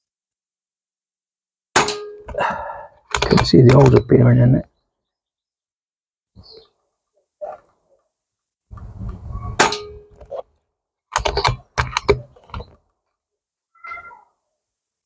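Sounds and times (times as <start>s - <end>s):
metallic clang: 1.8s - 2.4s, 9.6s - 10.3s
sharp mechanical clicks: 3.1s - 4.0s, 11.1s - 12.7s.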